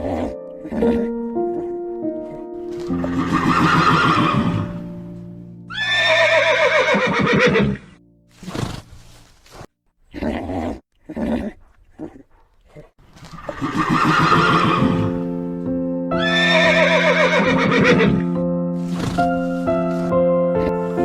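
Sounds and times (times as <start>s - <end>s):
horse whinnying: 0.0s - 4.9s, 5.7s - 9.0s, 13.2s - 15.3s, 16.2s - 18.2s
background music with held chords: 0.0s - 6.8s, 7.6s - 8.4s, 14.5s - 21.0s.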